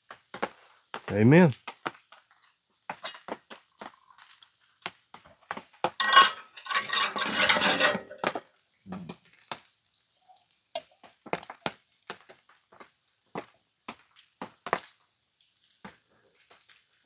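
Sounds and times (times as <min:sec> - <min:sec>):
spoon clinking against pot: 0:06.0 - 0:08.2
spoon scraping and stirring pot: 0:06.0 - 0:08.4.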